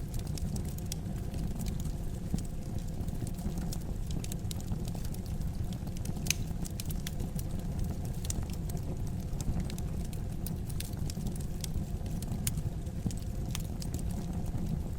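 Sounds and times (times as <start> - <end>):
wood fire crackling: 0.0 - 14.9.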